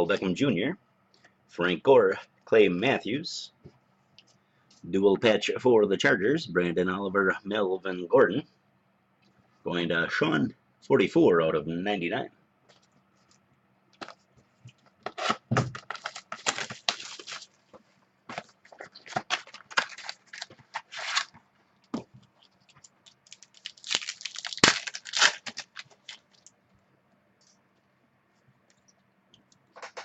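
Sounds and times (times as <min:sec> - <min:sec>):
foil pack tearing and crinkling: 0:15.0 - 0:17.6, 0:18.4 - 0:21.4, 0:22.8 - 0:26.5.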